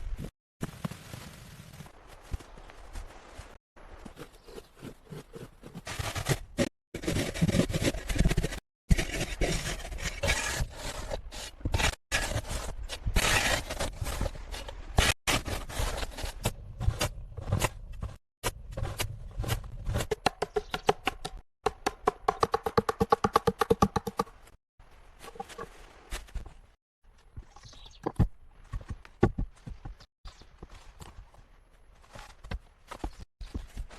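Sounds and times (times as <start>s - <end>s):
scraping and rubbing: 4.0s - 20.1s.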